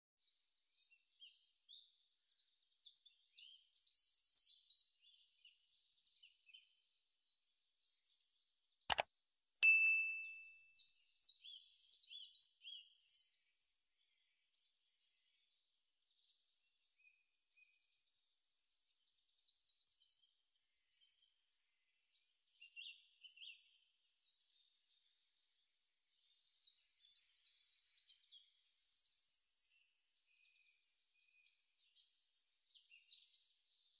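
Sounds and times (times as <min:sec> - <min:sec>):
short ding: 0:09.6 - 0:10.6.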